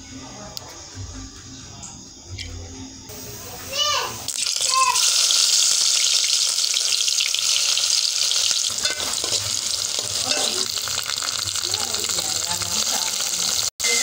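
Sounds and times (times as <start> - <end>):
onion sizzling in oil: 3.1 - 14.0
spatula stirring: 7.4 - 13.0.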